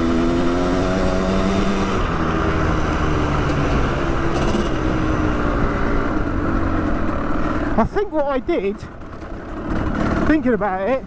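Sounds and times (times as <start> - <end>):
two-stroke motorbike engine: 0.0 - 11.0.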